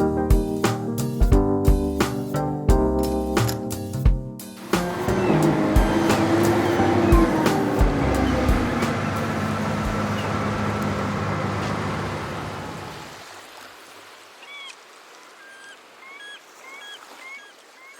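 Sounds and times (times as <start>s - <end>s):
engine running: 4.6s - 13.1s
rushing wave-like noise: 4.6s - 13.2s
faint bird chirps: 14.4s - 17.9s.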